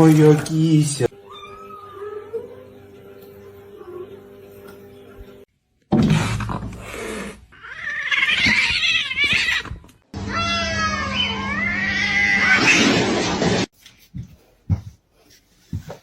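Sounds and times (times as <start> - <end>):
cat meowing: 1.2 - 2.7, 7.6 - 12.7.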